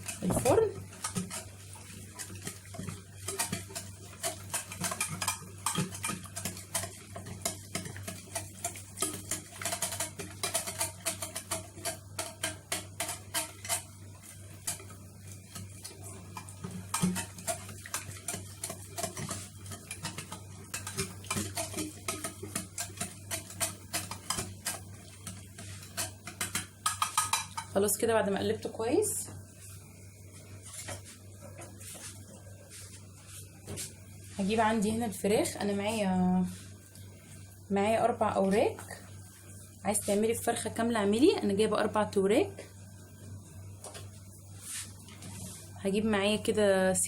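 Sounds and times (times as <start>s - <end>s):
utensil clinking and scraping glass dish: 25.7s - 27.8s.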